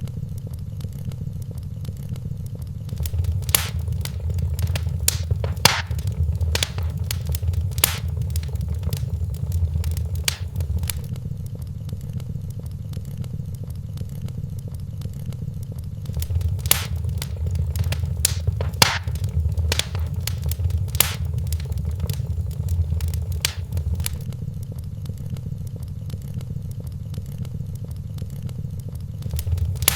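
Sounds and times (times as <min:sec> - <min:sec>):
sharp pops from fire: 0:02.9 - 0:11.1, 0:16.1 - 0:24.3, 0:29.2 - 0:29.9
wood fire crackling: 0:02.9 - 0:11.1, 0:16.1 - 0:24.3, 0:29.2 - 0:29.9.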